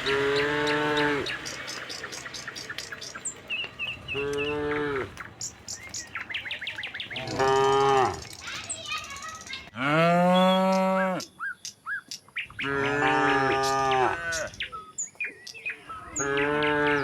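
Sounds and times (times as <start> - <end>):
cattle mooing: 0.0 - 1.5, 4.0 - 5.2, 7.1 - 8.2, 9.8 - 11.3, 12.6 - 14.6, 16.1 - 17.0
small birds chirping: 0.0 - 17.0.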